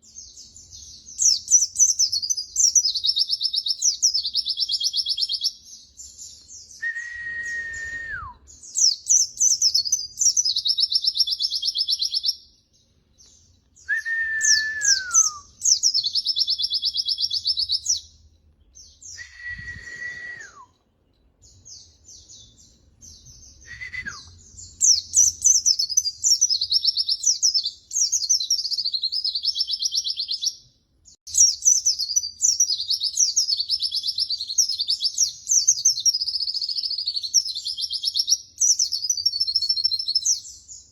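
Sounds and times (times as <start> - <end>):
clear lower whistle: 6.8 - 8.4, 13.8 - 15.6, 19.1 - 20.8, 23.6 - 24.4.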